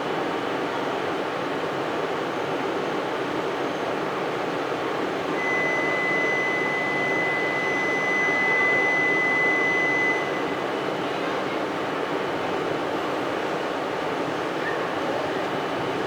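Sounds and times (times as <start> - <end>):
train rushing through station: 0.0 - 16.0
steady high-pitched beep: 5.4 - 10.6.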